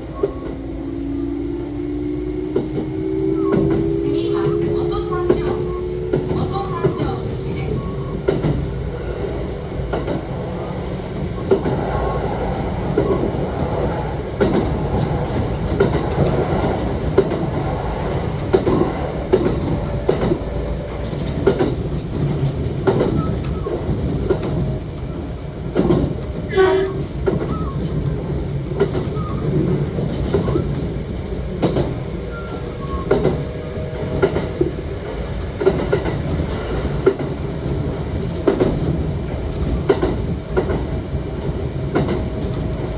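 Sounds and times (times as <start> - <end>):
train rumble and motor hum: 0.0 - 42.9
wheels clicking over rail joints: 12.9 - 24.8.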